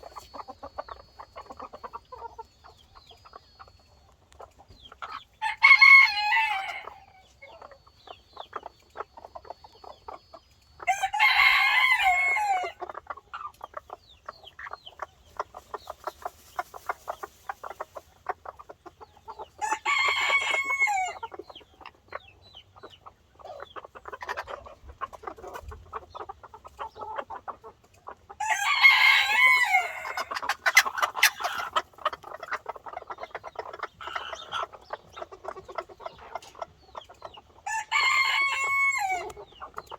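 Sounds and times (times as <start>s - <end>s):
chickens clucking: 0.0s - 39.9s
rooster crowing: 5.4s - 7.1s, 10.9s - 12.8s, 19.7s - 21.2s, 28.4s - 30.2s, 37.7s - 39.4s.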